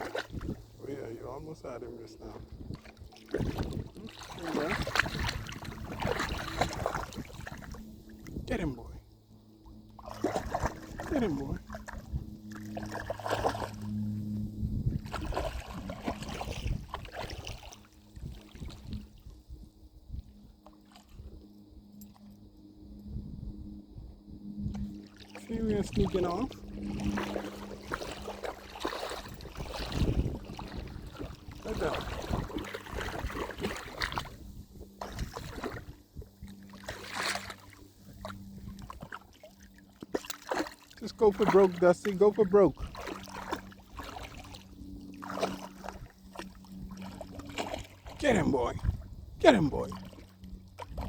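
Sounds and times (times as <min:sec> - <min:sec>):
dog splashing through water: 0:00.0 - 0:00.6, 0:02.7 - 0:07.7, 0:10.0 - 0:14.1, 0:15.0 - 0:18.9, 0:25.1 - 0:48.2
steady low hum: 0:00.0 - 0:51.0.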